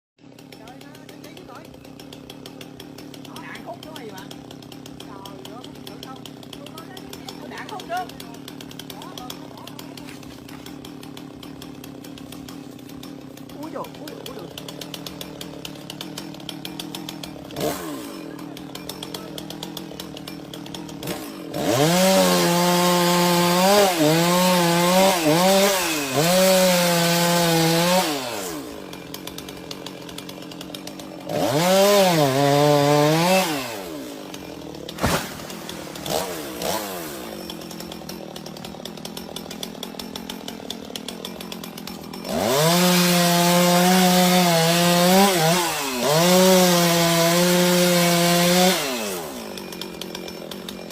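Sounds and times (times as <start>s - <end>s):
chainsaw idling: 0.2s - 50.9s
chainsaw revving cutting wood: 0.2s - 50.9s.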